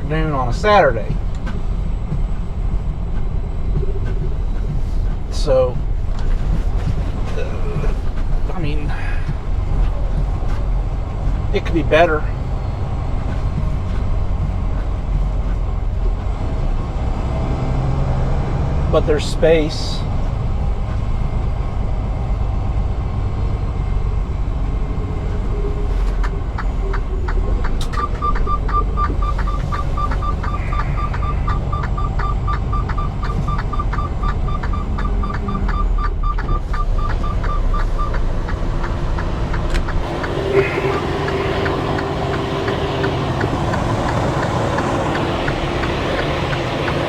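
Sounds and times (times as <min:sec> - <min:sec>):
diesel truck engine running: 0:00.0 - 0:47.0
rapid short beeps: 0:27.9 - 0:38.2, 0:40.0 - 0:45.2.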